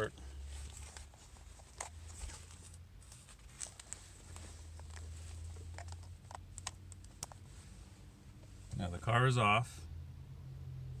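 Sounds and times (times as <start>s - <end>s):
connector and cable clicks and rustles: 0.7s - 7.4s.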